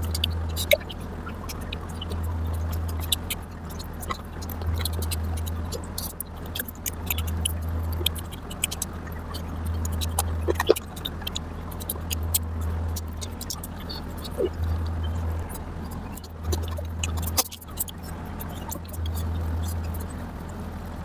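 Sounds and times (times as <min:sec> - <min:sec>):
chewing and mouth sounds: 0:00.0 - 0:21.0
low steady hum: 0:00.0 - 0:21.0.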